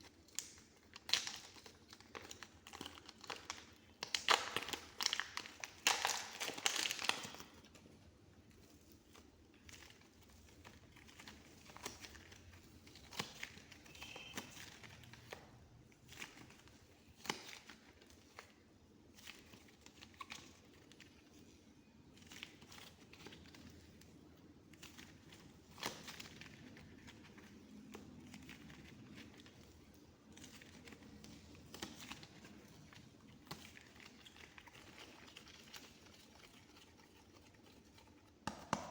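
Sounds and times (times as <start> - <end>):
modelling clay being squished: 0.0 - 38.9.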